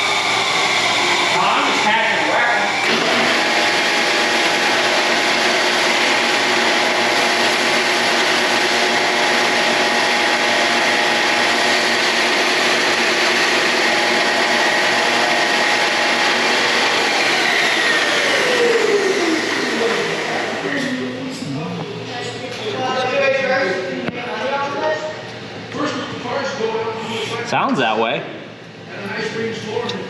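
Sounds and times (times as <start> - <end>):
angle grinder on metal: 0.0 - 20.4.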